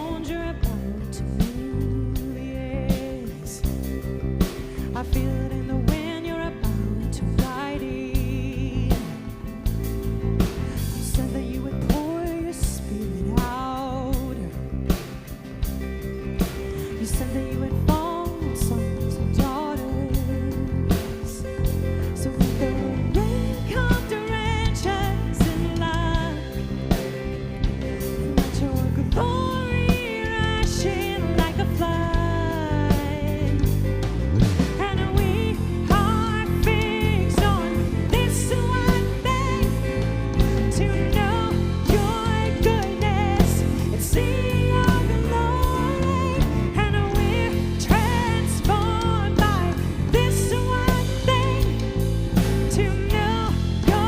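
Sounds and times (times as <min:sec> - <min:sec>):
person singing: 0:00.0 - 0:54.0
worship band playing: 0:00.0 - 0:54.0
steady drum beat: 0:03.0 - 0:54.0.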